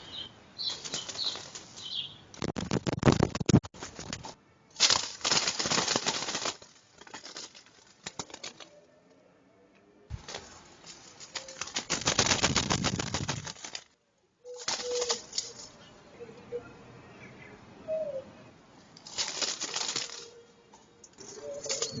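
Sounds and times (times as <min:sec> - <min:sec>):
pigeon wings flapping: 0:00.6 - 0:08.7, 0:10.1 - 0:13.9, 0:14.5 - 0:15.7, 0:19.0 - 0:20.4.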